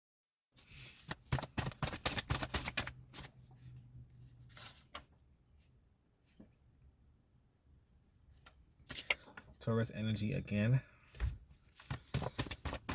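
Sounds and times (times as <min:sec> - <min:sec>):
cards being shuffled: 0:01.1 - 0:03.3, 0:11.2 - 0:12.9.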